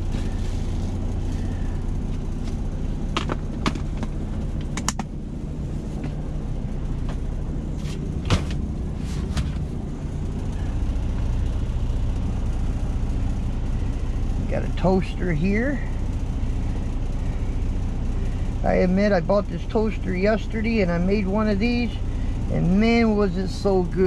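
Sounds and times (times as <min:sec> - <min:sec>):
diesel truck engine idling: 0:00.0 - 0:24.0
clicks and knocks of handling: 0:02.4 - 0:05.1.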